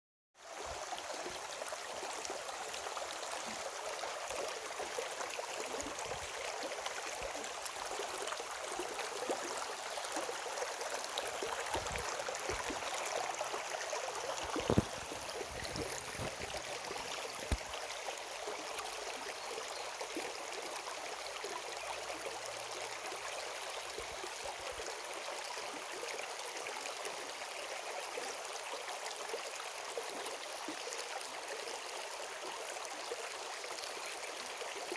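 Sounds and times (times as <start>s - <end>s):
stream water rushing: 0.6s - 19.2s.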